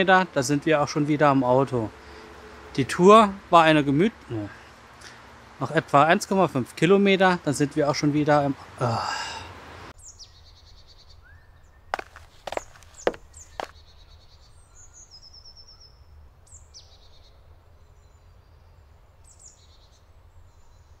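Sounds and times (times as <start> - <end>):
woodland birds chirping: 10.0 - 17.2.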